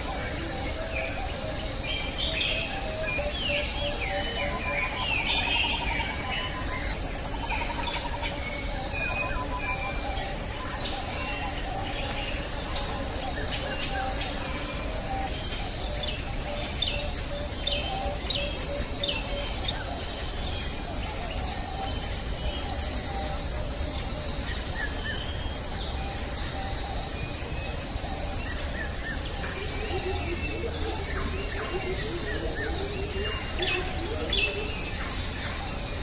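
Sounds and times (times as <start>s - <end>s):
birds chirping and calling: 0.0s - 36.0s
insects trilling: 0.0s - 36.0s.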